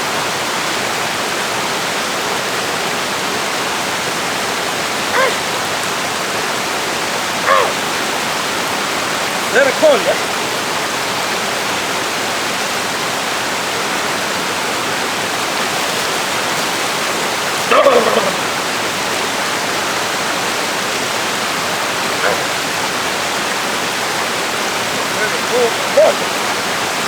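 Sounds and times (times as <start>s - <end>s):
waterfall rushing: 0.0s - 27.0s
person exclaiming: 5.2s - 5.4s, 7.5s - 7.8s, 17.6s - 18.5s, 25.3s - 26.3s.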